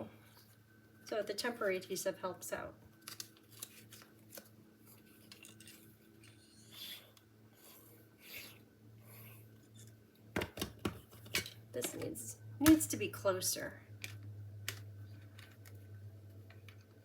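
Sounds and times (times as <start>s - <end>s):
paper rustling: 3.0s - 6.4s.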